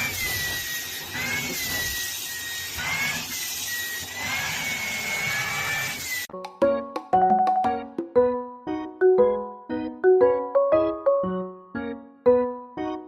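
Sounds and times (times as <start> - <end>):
keyboard music with piano notes: 6.3 - 13.0.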